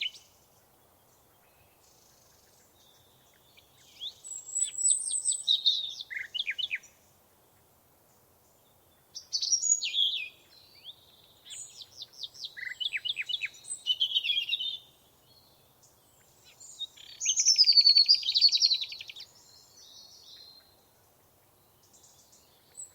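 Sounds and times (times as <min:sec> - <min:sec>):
songbird singing: 0:00.0 - 0:22.9.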